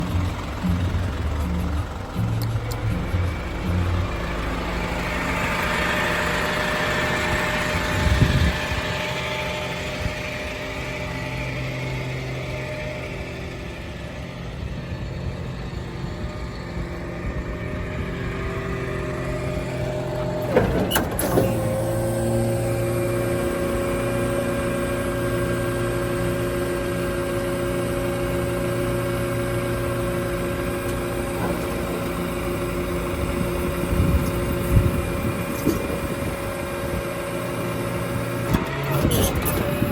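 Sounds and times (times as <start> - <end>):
tow truck engine whine: 0.0 - 39.9
metal clunk: 19.4 - 21.9.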